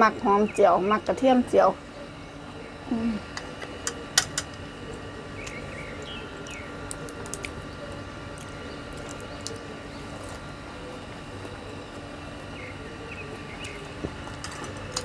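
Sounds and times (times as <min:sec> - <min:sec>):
wet squishing and chewing: 0:04.8 - 0:10.5.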